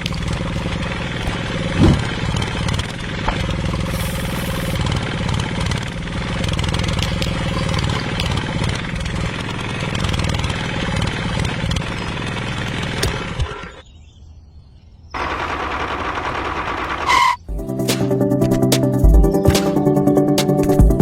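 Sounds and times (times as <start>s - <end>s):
small engine running: 0.0s - 13.8s, 15.2s - 17.4s.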